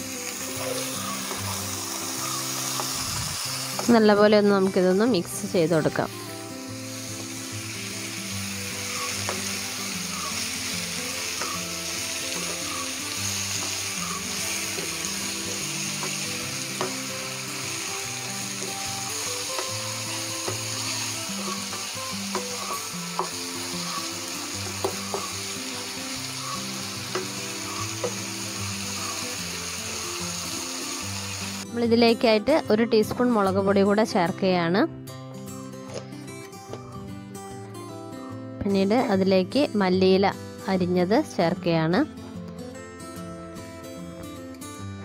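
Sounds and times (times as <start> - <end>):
chicken sizzling in a frying pan: 0.0 - 31.6
soft background music: 0.0 - 45.0
spatula knocking against pan: 24.6 - 25.3.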